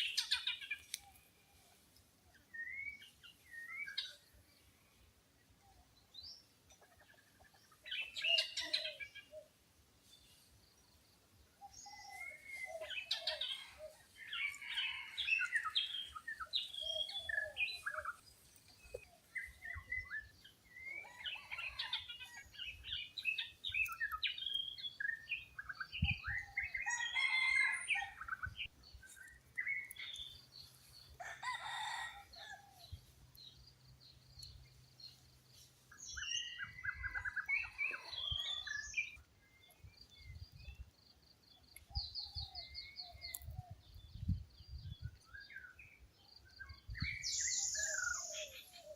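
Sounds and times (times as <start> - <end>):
birds chirping and calling: 0.0 - 48.9
junglefowl crowing: 21.0 - 22.5, 26.7 - 28.3, 31.2 - 32.8.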